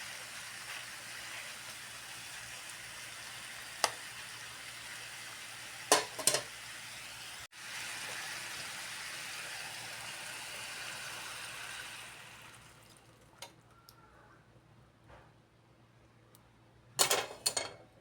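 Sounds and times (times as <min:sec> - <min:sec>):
food sizzling in a frying pan: 0:00.0 - 0:13.2.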